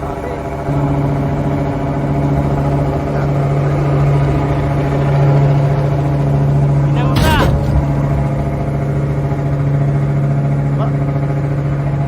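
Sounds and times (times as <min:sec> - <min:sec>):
engine humming: 0:00.6 - 0:12.0.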